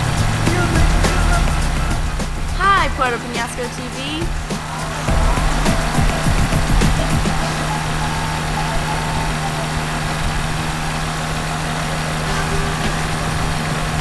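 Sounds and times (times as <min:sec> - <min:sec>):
two-stroke engine droning: 0:00.0 - 0:14.0.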